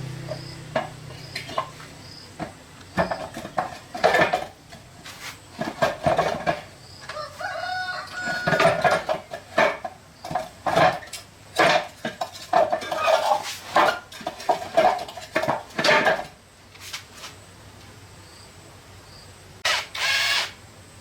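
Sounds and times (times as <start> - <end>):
metal objects clanking together: 0.3 - 1.8, 2.4 - 4.6, 5.6 - 6.7, 8.1 - 16.4.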